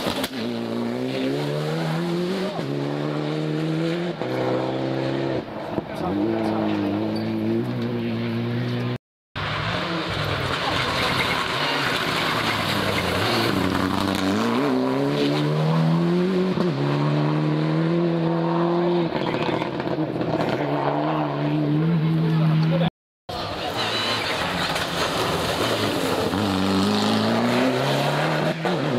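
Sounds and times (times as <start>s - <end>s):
rally car engine revving: 0.0s - 28.9s.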